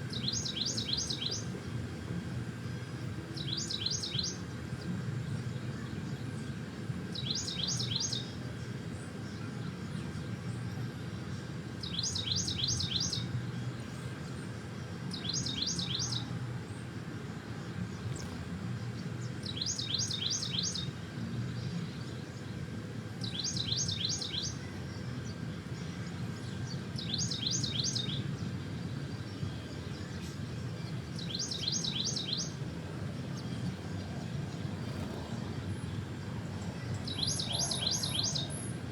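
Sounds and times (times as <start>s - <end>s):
low background rumble: 28.4s - 38.9s
songbird singing short phrase: 36.7s - 38.7s.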